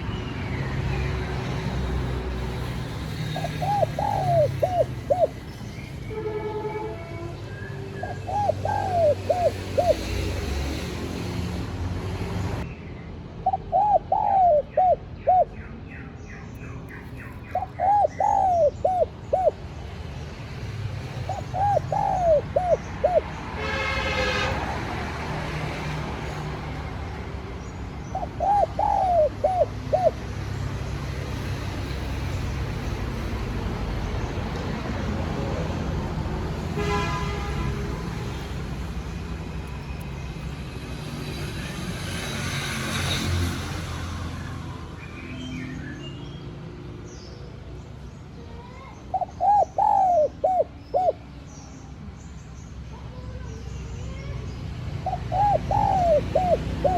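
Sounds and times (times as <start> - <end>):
dove cooing: 3.2 - 5.5, 8.0 - 10.8, 13.4 - 15.6, 17.3 - 19.6, 21.2 - 23.7, 28.0 - 30.3, 49.1 - 51.2, 55.0 - 56.9.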